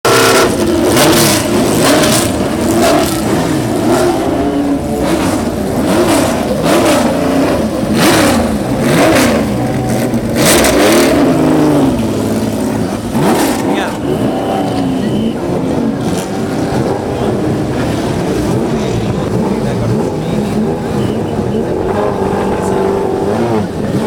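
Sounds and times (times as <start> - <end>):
racing car engines revving: 0.0 - 24.0.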